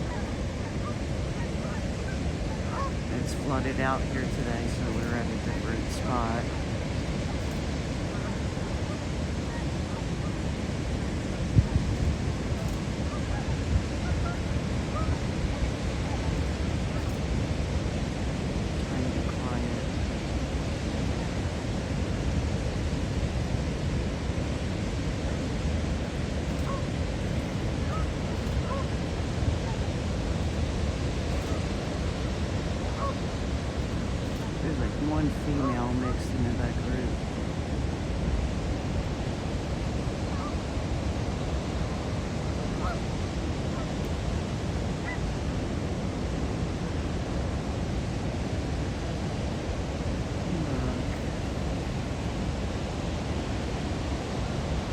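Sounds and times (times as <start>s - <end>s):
waterfowl calls: 0.0s - 10.4s, 11.9s - 17.3s, 26.0s - 31.7s, 32.3s - 36.2s, 42.8s - 43.0s
wind rushing over microphone: 0.0s - 54.9s.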